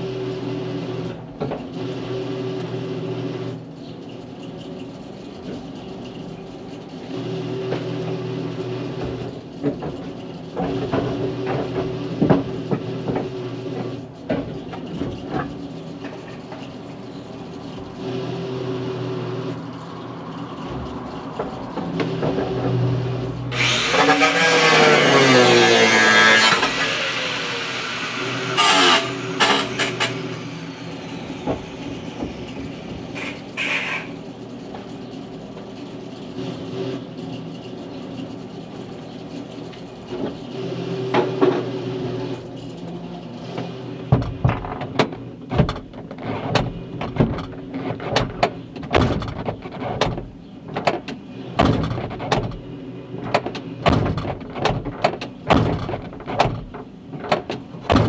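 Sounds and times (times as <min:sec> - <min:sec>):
machine hum: 0:23.2 - 0:34.7
power tool winding down: 0:23.5 - 0:34.2.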